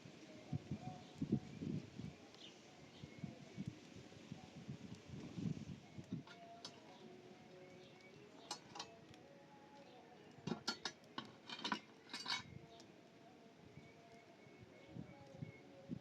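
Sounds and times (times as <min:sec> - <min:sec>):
hard objects clinking together: 0:08.4 - 0:09.0, 0:10.4 - 0:12.5.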